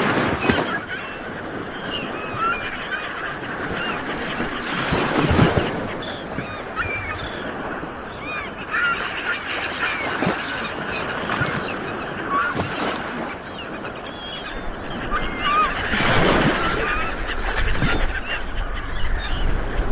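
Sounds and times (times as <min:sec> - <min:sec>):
sea waves washing onto shore: 0:00.0 - 0:08.7
seagulls calling: 0:00.0 - 0:19.9.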